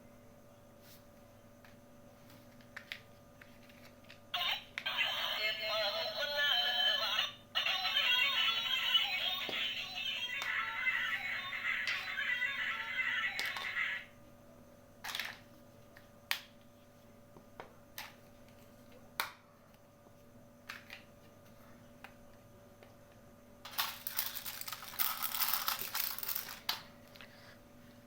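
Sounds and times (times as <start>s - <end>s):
plastic toy pieces clicking: 23.7s - 26.8s.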